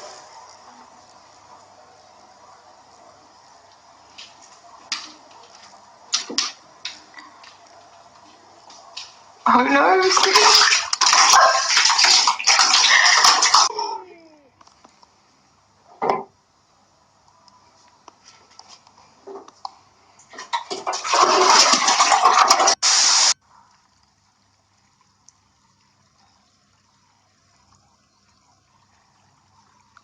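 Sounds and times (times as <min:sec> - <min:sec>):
rushing water: 0:00.0 - 0:03.1, 0:08.7 - 0:13.7, 0:20.3 - 0:23.4.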